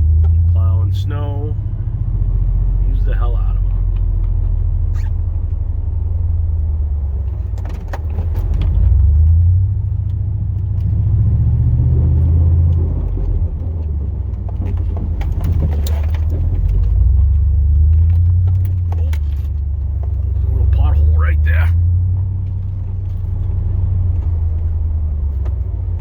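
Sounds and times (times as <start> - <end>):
truck engine droning under load: 0.0 - 26.0
light rattles and clicks: 3.6 - 5.6, 6.5 - 11.1, 12.2 - 21.0.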